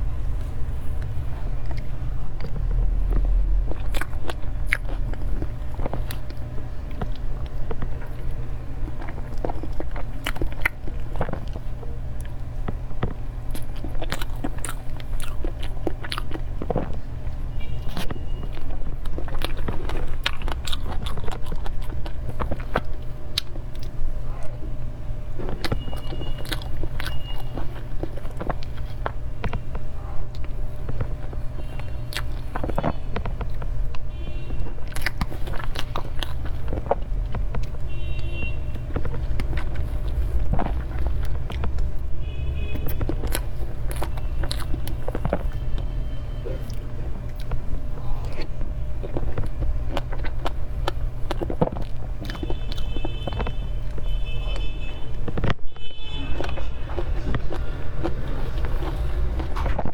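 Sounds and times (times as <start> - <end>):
chewing and wet mouth sounds: 0.0 - 59.9
steady low hum: 0.0 - 59.9
mouth clicks and smacks: 25.4 - 55.6.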